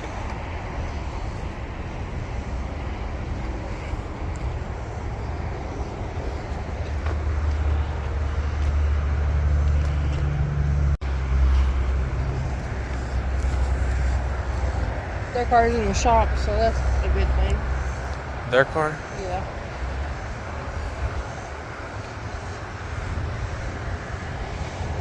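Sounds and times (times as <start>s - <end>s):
car driving rumble: 0.0s - 25.0s
man talking: 18.4s - 19.1s.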